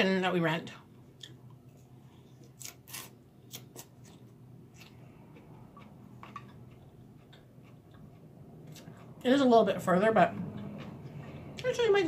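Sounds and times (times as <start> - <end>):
faint chewing: 1.2 - 9.8, 10.4 - 11.8.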